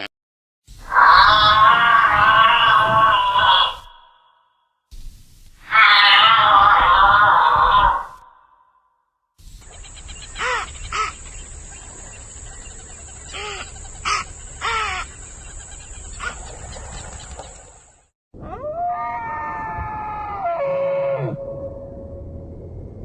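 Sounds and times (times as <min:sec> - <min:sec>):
animal long sliding call: 0:00.8 - 0:04.2, 0:05.6 - 0:08.2
animal calls rising and falling: 0:00.8 - 0:04.3, 0:05.6 - 0:08.4, 0:18.4 - 0:21.4.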